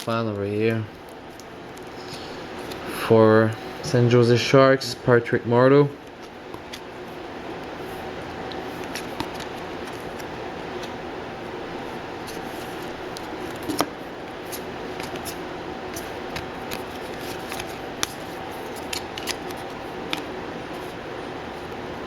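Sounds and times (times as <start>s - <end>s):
steady background hum: 0.0s - 22.0s
cards clicking and sliding: 8.5s - 11.0s, 11.8s - 21.0s.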